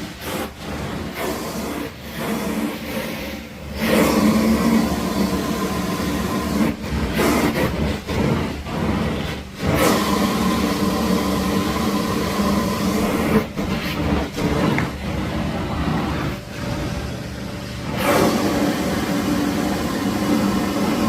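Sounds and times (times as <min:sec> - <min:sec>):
carpet extraction machine droning: 0:00.0 - 0:21.0.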